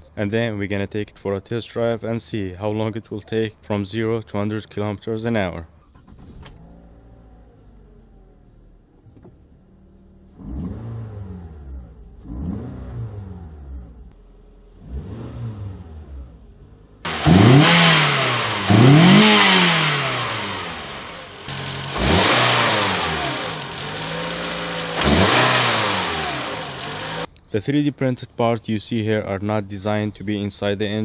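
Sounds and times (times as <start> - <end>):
car engine revving: 10.0 - 27.3.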